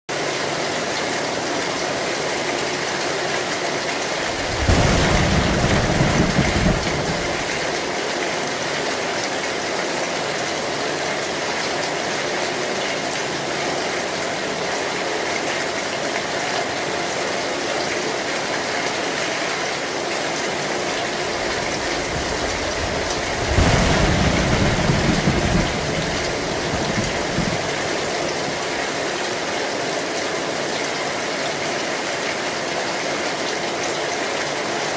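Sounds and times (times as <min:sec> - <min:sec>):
heavy rain on a tin roof: 0:00.1 - 0:34.9
thunder rolling: 0:04.1 - 0:08.0, 0:20.6 - 0:28.9.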